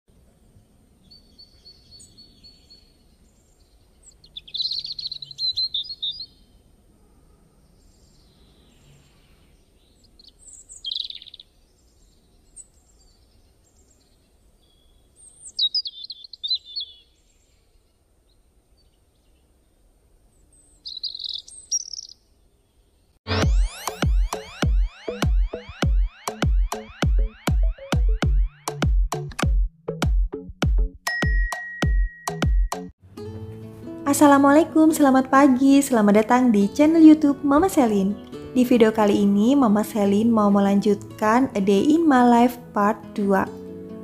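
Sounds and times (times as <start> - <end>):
faint background noise: 0.1 - 23.2
small bird chirping: 1.0 - 6.6, 7.8 - 27.9
music with a beat: 23.3 - 32.9.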